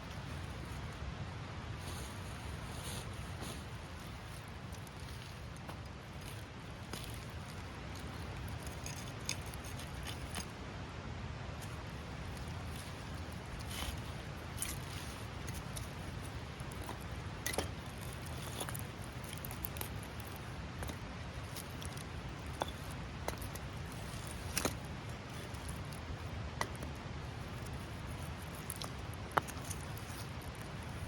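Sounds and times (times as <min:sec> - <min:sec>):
campfire crackling and popping: 0:11.6 - 0:31.0.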